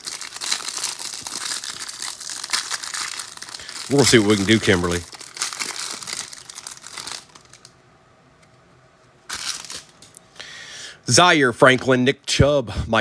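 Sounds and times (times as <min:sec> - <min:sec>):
foil wrapper crinkling and tearing: 0:00.0 - 0:07.8, 0:09.3 - 0:10.0.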